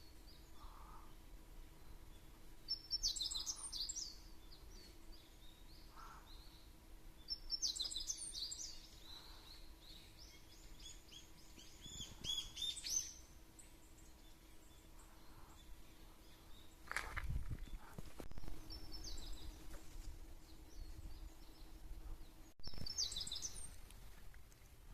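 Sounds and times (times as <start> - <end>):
small birds chirping: 0.0 - 24.8.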